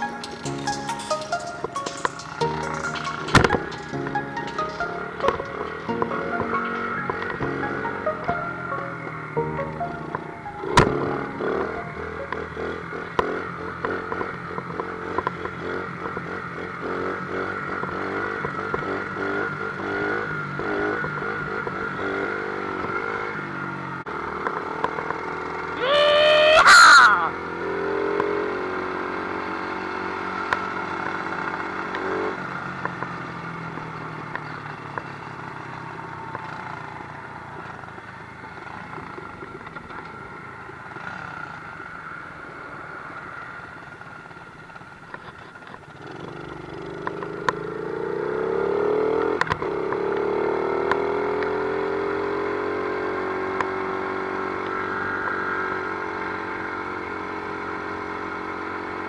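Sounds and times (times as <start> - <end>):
sharp clicks and knocks: 0.0 - 6.6
dirt bike engine revving: 10.4 - 32.6, 46.0 - 53.3.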